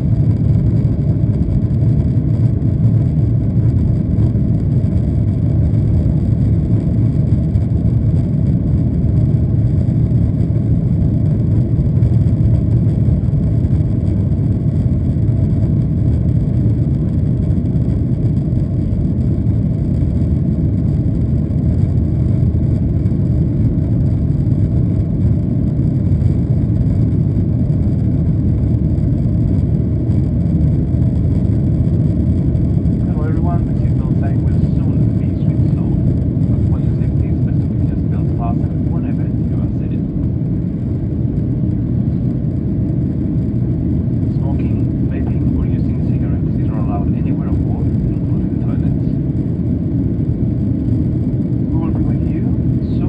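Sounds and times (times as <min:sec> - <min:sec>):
jet engine rumble in cabin: 0:00.0 - 0:53.0.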